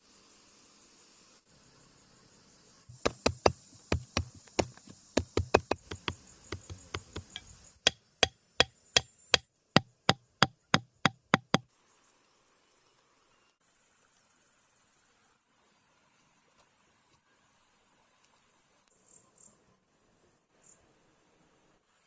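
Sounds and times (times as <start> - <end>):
sharp knocks: 2.9 - 11.6.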